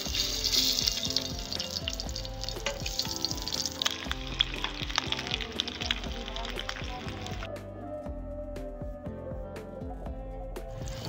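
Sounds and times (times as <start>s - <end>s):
eggs sizzling in hot oil: 0.0s - 7.5s
oil crackling and popping: 0.0s - 7.5s.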